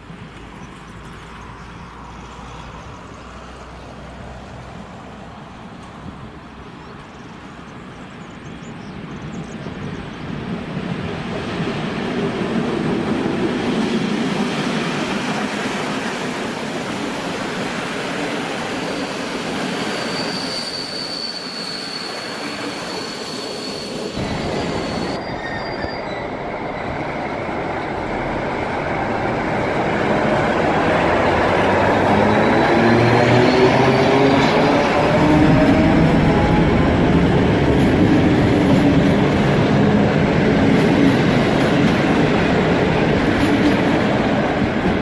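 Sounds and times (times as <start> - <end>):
train rolling on rails: 0.0 - 45.0
high wheel squeal: 18.5 - 39.7.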